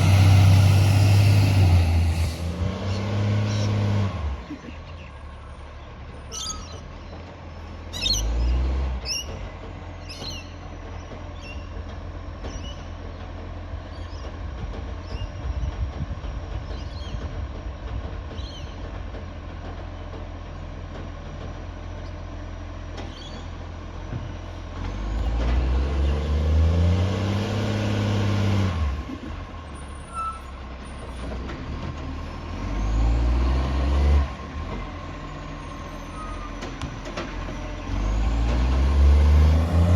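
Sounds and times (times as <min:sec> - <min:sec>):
garbage truck engine revving: 0:00.0 - 0:04.5, 0:24.6 - 0:30.1, 0:31.2 - 0:39.9.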